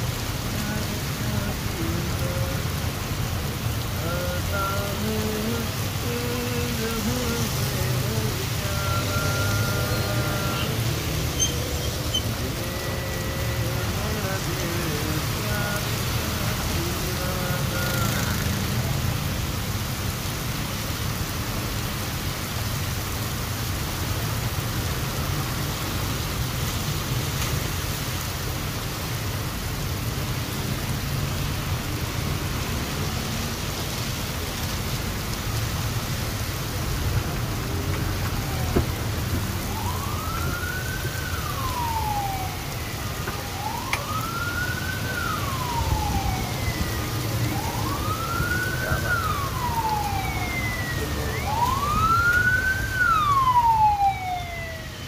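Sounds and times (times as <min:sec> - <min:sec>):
heavy rain falling: 0:00.0 - 0:55.0
traffic rumble: 0:00.0 - 0:55.0
siren wailing: 0:04.3 - 0:18.7, 0:37.6 - 0:55.0.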